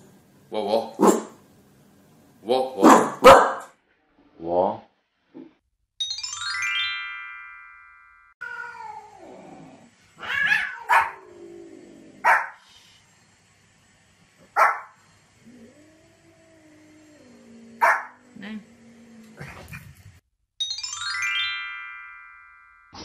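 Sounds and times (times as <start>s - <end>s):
synthesized chime: 6.0s - 8.4s, 20.6s - 23.0s
cats meowing: 8.4s - 11.8s
small dog yapping: 10.2s - 11.2s.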